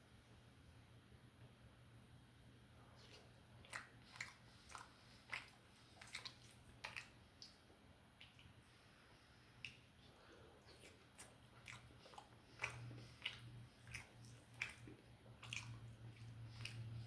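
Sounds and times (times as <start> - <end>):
chewing food: 2.9 - 8.8, 9.5 - 17.0.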